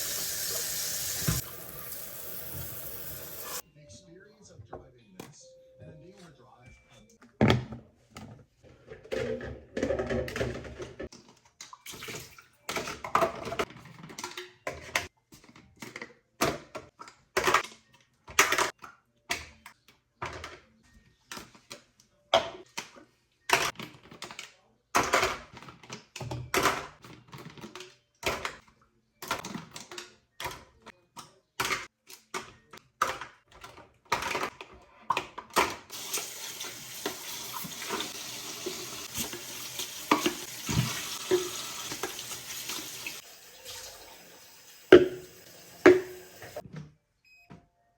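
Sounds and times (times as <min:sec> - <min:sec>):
objects knocking and clattering: 0:07.2 - 0:11.8, 0:31.6 - 0:43.7, 0:44.9 - 0:46.9.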